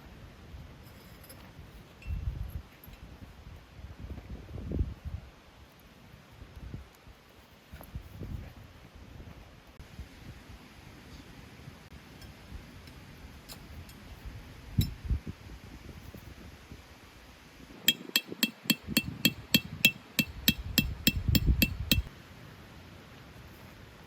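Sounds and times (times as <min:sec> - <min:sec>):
utensil beating against bowl: 0:17.9 - 0:22.1.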